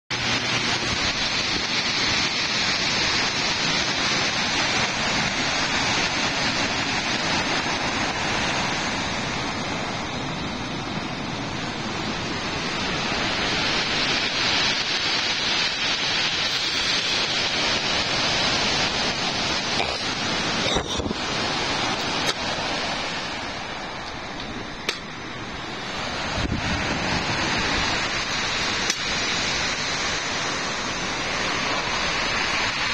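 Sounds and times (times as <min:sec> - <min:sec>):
rush of wind and water: 0:00.1 - 0:32.9.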